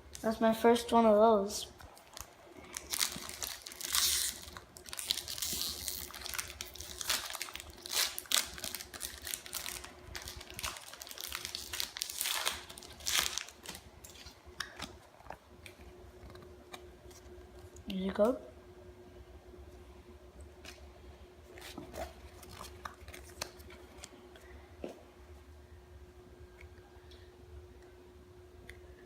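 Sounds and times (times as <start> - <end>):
foil wrapper crinkling and tearing: 1.8 - 16.4, 21.6 - 24.1.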